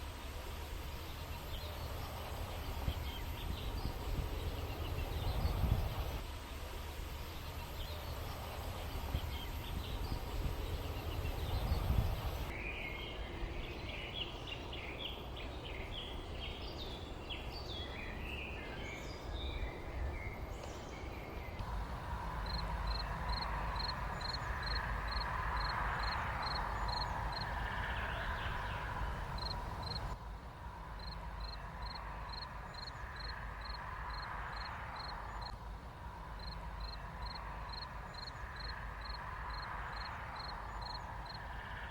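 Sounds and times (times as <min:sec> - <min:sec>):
small birds chirping: 0:00.0 - 0:06.6, 0:07.2 - 0:30.2
steady low rumble: 0:00.0 - 0:41.9.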